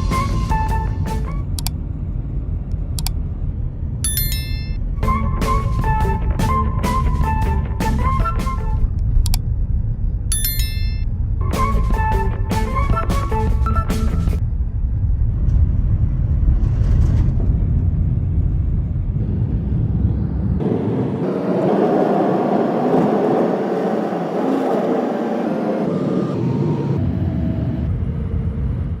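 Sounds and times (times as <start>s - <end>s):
car driving low rumble: 0.0s - 11.5s, 14.3s - 29.0s
higher rushing noise: 19.2s - 27.4s.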